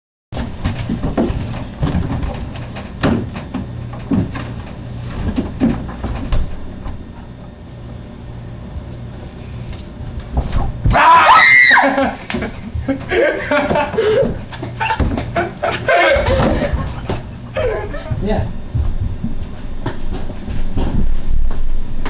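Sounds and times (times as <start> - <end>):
steady low hum: 0.4 - 22.0
muffled knocks and bumps: 12.3 - 21.7.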